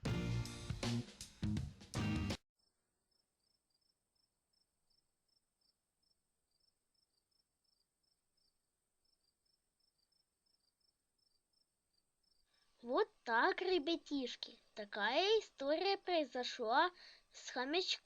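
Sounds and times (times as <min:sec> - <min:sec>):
crickets chirping: 0:02.6 - 0:12.6.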